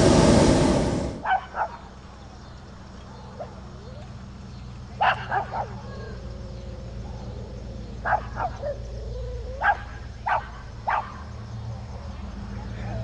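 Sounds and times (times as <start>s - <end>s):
low rumble: 0.0s - 1.3s
dog barking: 1.2s - 1.8s, 5.0s - 6.0s, 8.0s - 8.8s, 9.6s - 11.2s.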